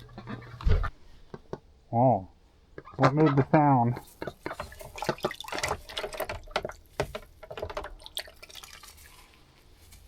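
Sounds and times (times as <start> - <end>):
ducks splashing in water: 4.2 - 6.9.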